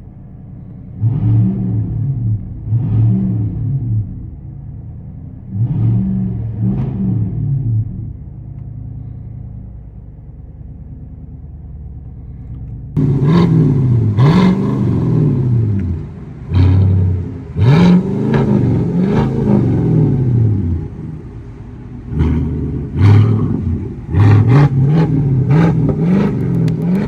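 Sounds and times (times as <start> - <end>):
engine revving in quick blips: 0.9 - 4.4, 5.5 - 8.1, 12.4 - 27.0
truck engine idling: 8.2 - 27.0.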